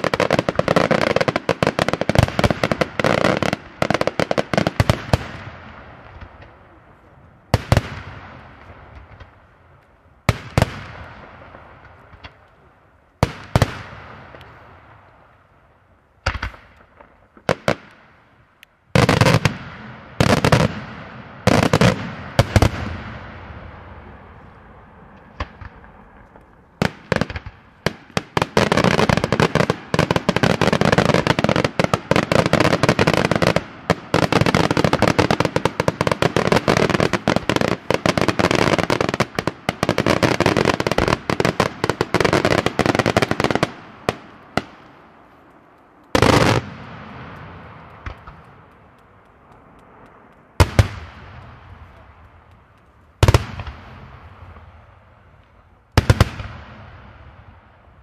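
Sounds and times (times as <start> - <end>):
rapid firework crackling: 25.2 - 54.9.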